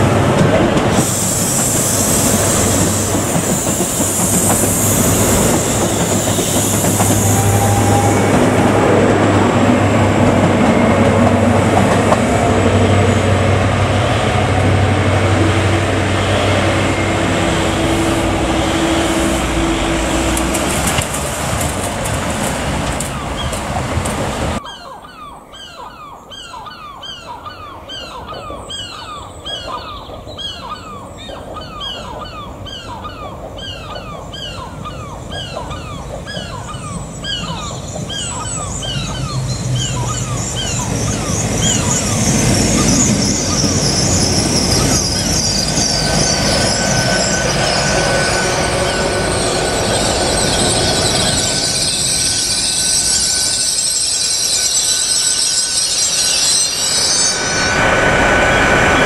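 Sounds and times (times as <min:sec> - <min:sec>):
train engines and wheels: 0:00.0 - 0:59.0
high whine: 0:04.6 - 0:21.8, 0:41.0 - 0:59.0.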